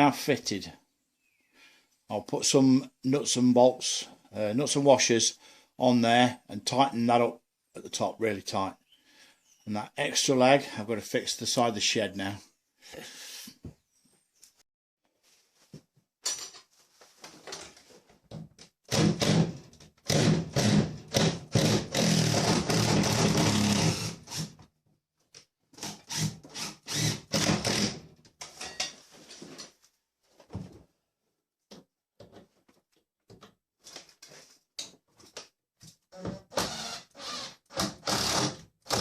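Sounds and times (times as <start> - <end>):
power drill running: 26.1 - 28.0, 36.5 - 39.0.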